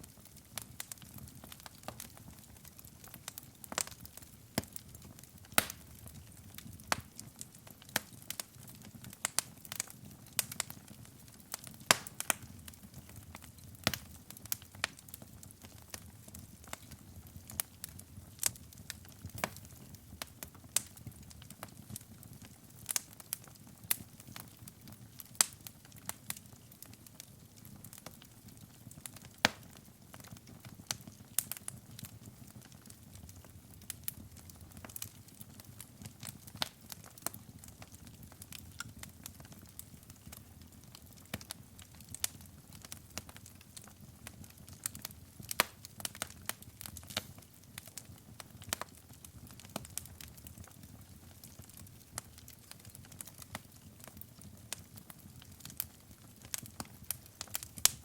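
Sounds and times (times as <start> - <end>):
fire crackling and popping: 0.0 - 58.0.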